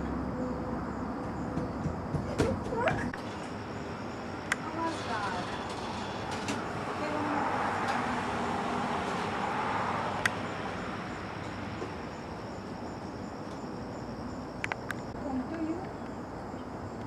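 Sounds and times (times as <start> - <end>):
vehicle passing: 3.2 - 14.5.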